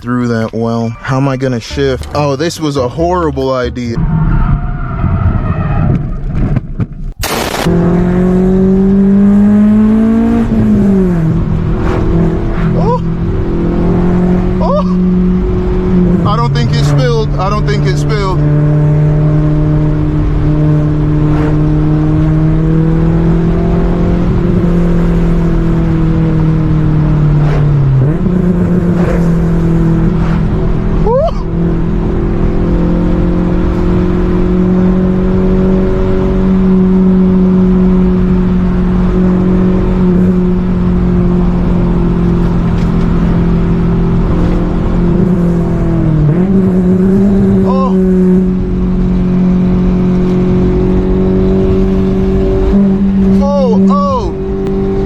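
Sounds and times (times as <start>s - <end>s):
car exhaust drone under load: 4.0s - 55.0s.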